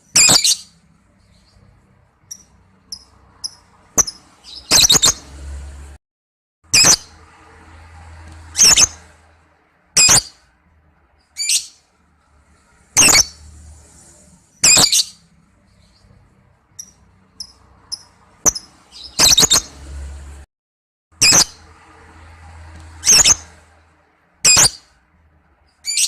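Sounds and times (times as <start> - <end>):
lovebird shrill chirps: 0.1 - 0.7, 2.3 - 5.2, 8.6 - 9.0, 10.0 - 10.4, 13.0 - 13.4, 14.6 - 15.2, 16.8 - 19.7, 24.4 - 24.9.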